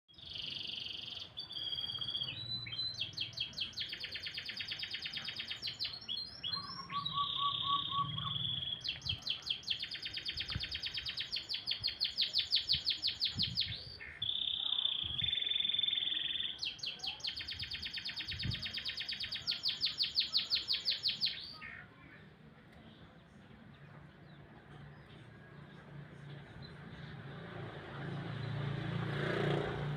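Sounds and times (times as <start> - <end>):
canary singing: 0.1 - 21.9.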